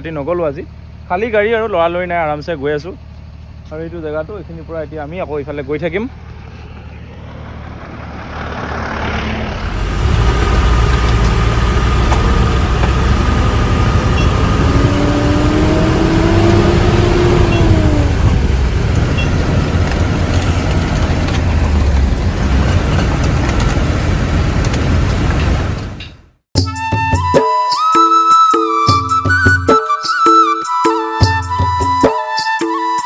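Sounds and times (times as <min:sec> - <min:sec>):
truck engine rumble: 0:00.0 - 0:26.5
rising whine: 0:06.1 - 0:26.1.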